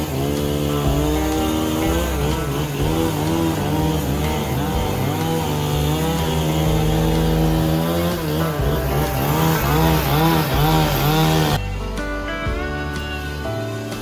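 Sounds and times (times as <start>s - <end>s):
motor-driven machine revving: 0.0s - 11.6s.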